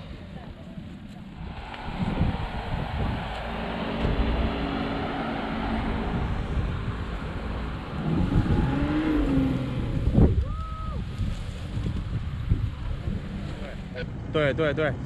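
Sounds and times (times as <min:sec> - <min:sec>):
wind buffeting microphone: 0:00.0 - 0:14.0
off-road engine revving: 0:01.3 - 0:10.4, 0:11.1 - 0:14.2.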